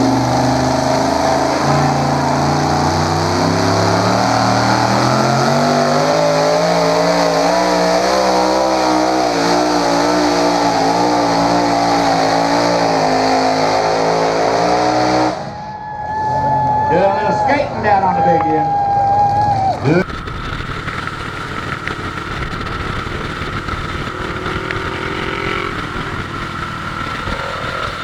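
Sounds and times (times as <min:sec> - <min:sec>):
tractor engine running hard: 0:00.0 - 0:15.5, 0:20.0 - 0:28.0.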